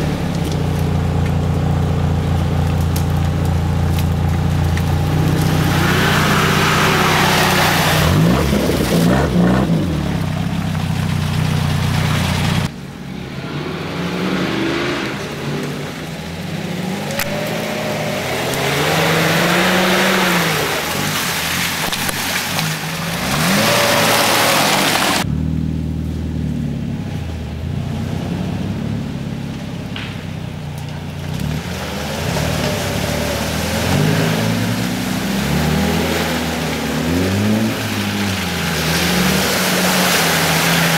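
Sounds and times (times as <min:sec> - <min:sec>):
off-road engine revving: 0:00.0 - 0:40.9
rushing noise: 0:05.0 - 0:09.5, 0:12.2 - 0:25.4.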